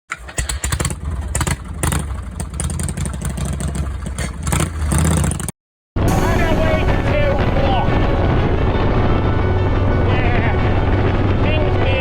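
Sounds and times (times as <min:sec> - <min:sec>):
motorcycle engine running: 0:00.3 - 0:05.5.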